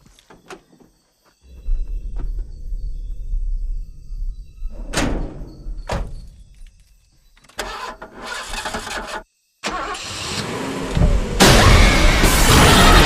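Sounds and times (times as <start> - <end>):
rumbling engine-like noise: 1.5 - 6.8.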